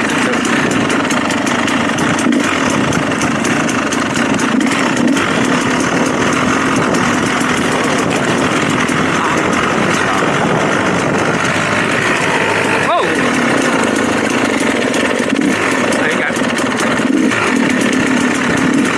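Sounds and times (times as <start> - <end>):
dirt bike engine running: 0.0 - 18.9.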